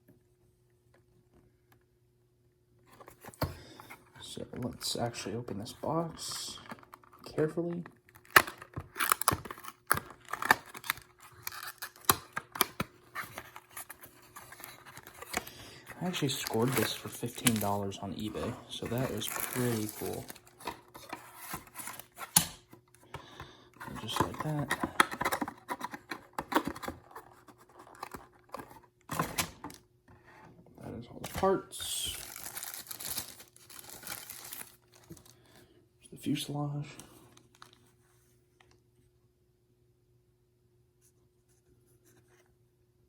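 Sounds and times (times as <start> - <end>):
packaging crackling and tearing: 6.5 - 22.4, 31.2 - 35.4.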